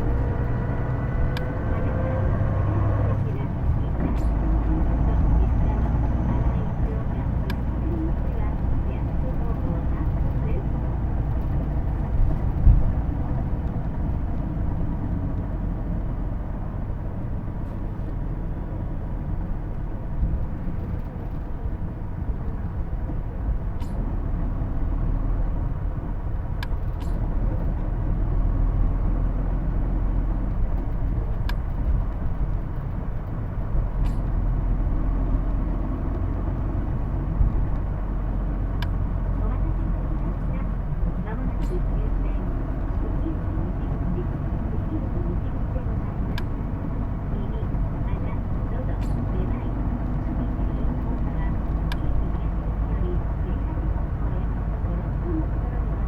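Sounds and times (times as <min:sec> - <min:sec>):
bus engine drone: 0:00.0 - 0:56.0
faint clicks: 0:30.5 - 0:38.0.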